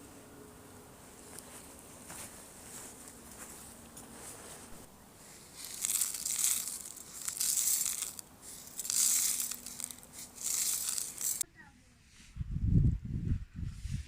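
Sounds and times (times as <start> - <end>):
crinkling rustling handling noise: 1.2 - 11.4.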